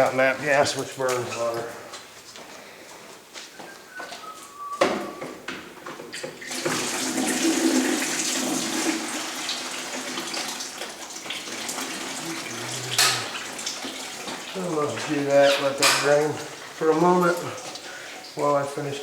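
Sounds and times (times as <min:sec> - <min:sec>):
water rushing through pipe: 0:06.5 - 0:17.7.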